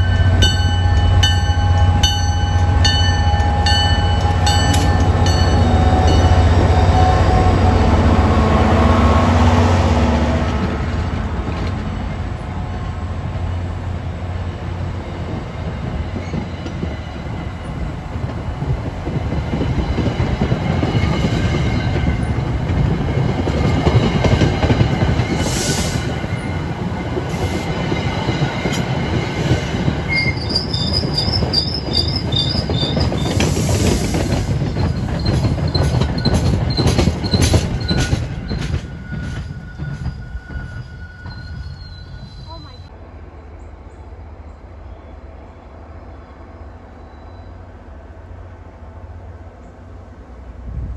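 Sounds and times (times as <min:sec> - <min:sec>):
diesel locomotive engine rumbling: 0:00.0 - 0:50.9
wheel and rail clatter: 0:26.7 - 0:42.6
high wheel squeal: 0:30.1 - 0:42.9.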